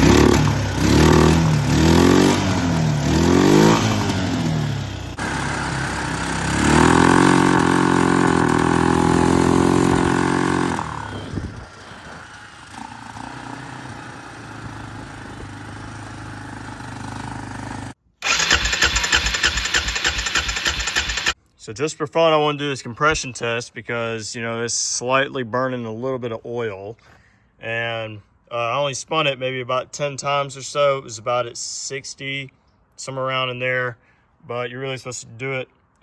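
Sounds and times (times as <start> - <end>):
starter cranking engine: 0.0 - 13.2, 18.2 - 21.4
atv engine revving: 0.0 - 21.4.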